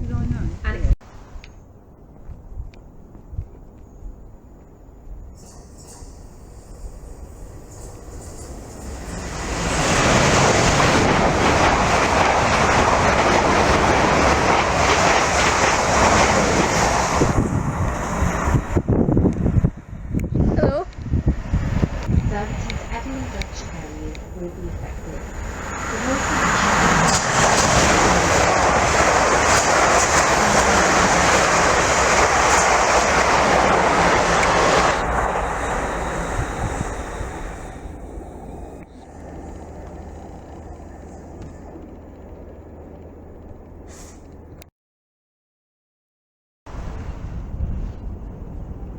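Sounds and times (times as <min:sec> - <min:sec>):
train wheels on rails: 0:05.4 - 0:20.3, 0:20.9 - 0:44.5.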